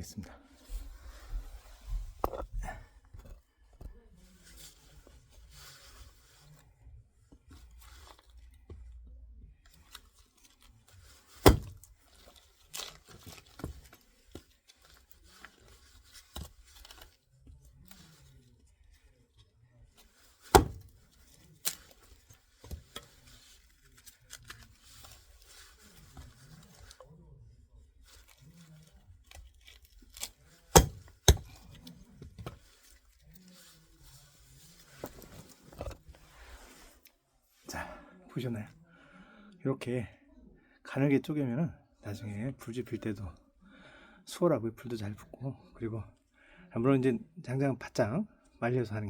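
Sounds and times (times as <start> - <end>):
wood cracking and tearing: 10.0 - 17.2, 20.3 - 27.0, 28.1 - 32.8
hatchet chopping wood: 11.4 - 11.9, 20.5 - 20.9, 30.7 - 31.6.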